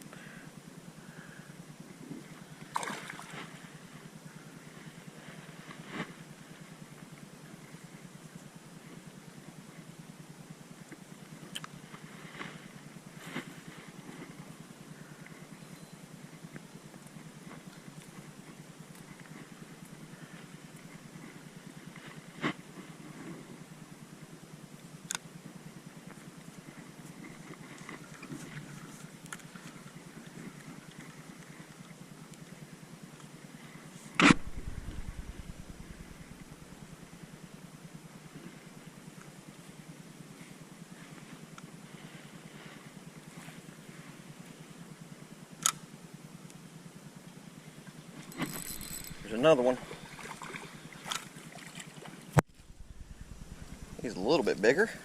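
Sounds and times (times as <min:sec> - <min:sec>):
steady low hum: 0:00.0 - 0:55.0
splashes in shallow water: 0:02.7 - 0:03.6
sharp click: 0:34.2 - 0:36.2.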